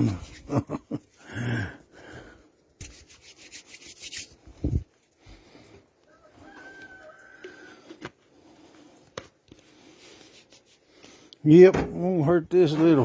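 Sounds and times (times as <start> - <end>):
hands rubbing glue into wood: 0.0 - 1.4, 2.1 - 5.7, 7.8 - 11.3.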